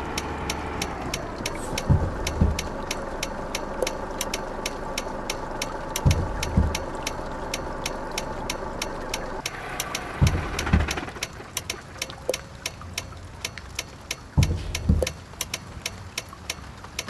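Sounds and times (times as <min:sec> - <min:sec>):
truck engine running: 0:00.0 - 0:12.5, 0:14.3 - 0:15.4
fast even ticking: 0:00.0 - 0:17.0
low thumps: 0:00.8 - 0:08.8, 0:10.0 - 0:11.7, 0:14.3 - 0:15.4.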